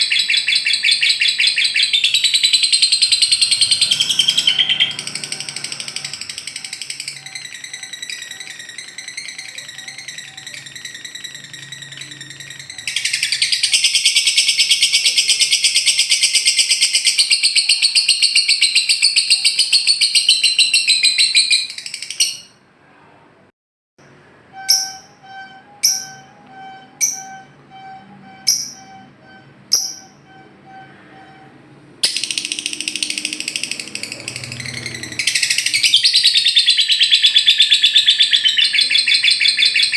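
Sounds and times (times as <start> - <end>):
sharp downward-sweeping chirps: 0.0 - 22.6, 24.0 - 39.9
lovebird rattling trill: 2.5 - 14.9.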